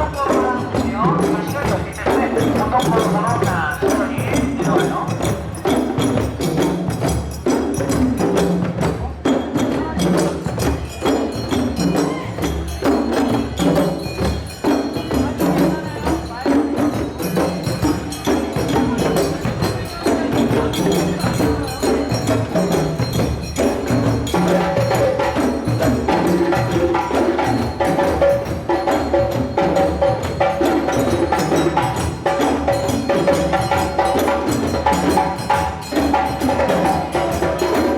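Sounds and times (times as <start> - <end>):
drums playing a driving rhythm: 0.0 - 37.9
bright bell or wood-block strikes: 10.5 - 37.9.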